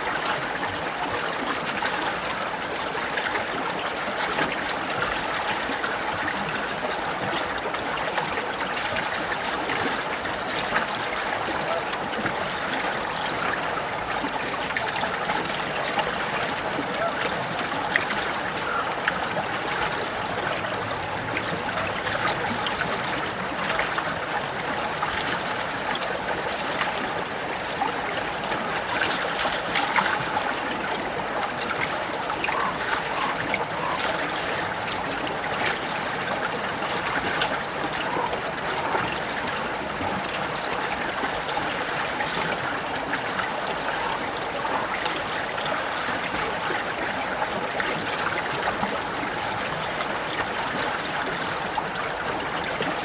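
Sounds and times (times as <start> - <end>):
stream water bubbling: 0.0 - 53.0.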